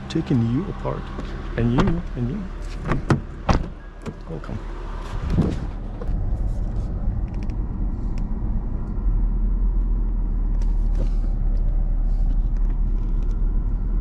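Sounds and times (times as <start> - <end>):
car engine rumble: 0.0 - 14.0
road noise: 0.0 - 14.0.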